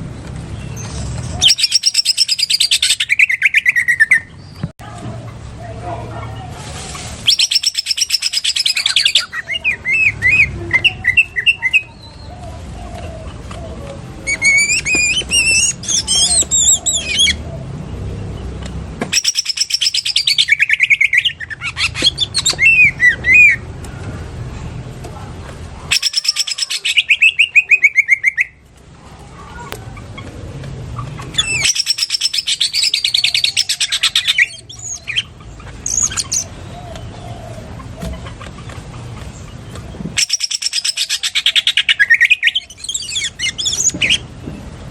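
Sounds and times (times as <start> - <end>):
bird rattling chatter and whistles: 0.5 - 4.2, 7.0 - 12.1, 14.2 - 17.4, 19.1 - 23.6, 40.1 - 44.3.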